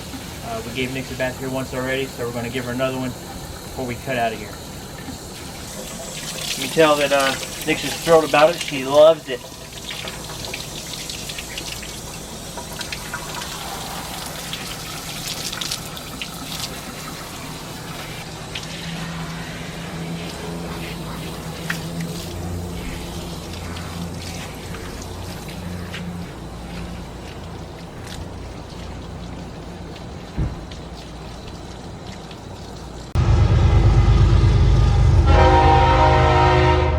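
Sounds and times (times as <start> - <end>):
water spraying and splashing: 0.0 - 33.2
low steady hum: 33.1 - 36.9.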